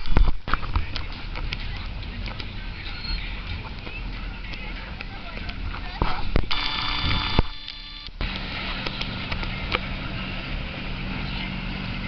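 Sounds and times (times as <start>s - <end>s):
steady multi-pitched tone: 6.5s - 8.4s.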